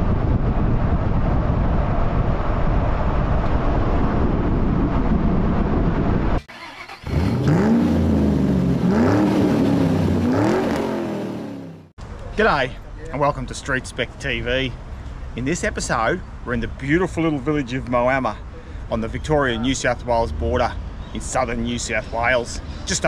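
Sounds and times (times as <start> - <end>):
loud low rumble: 0.0 - 6.5
car engine revving: 6.5 - 11.9.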